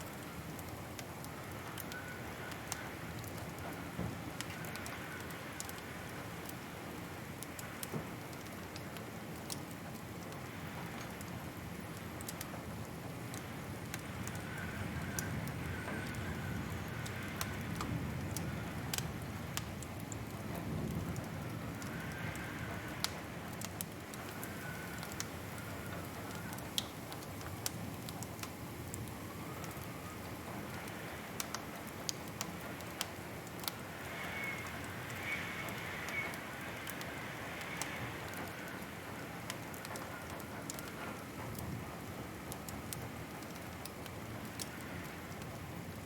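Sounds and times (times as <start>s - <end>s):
wood fire crackling: 0.0s - 46.0s
faint wavering whistle: 34.1s - 36.4s.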